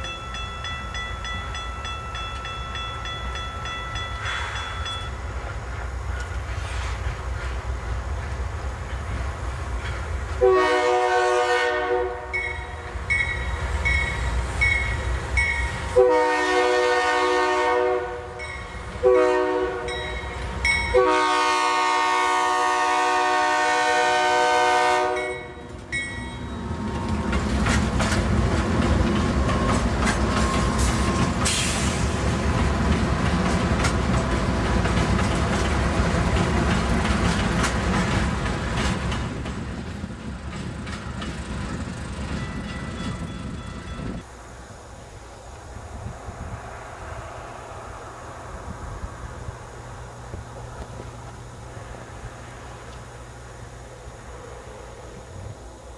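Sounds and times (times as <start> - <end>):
locomotive bell ringing: 0.0 - 5.4, 12.3 - 15.9, 18.4 - 18.9, 19.8 - 21.1, 25.2 - 27.3, 42.2 - 44.3
train rumbling and clattering past: 0.0 - 55.9
locomotive air horn blasts: 10.4 - 12.7, 15.9 - 25.6.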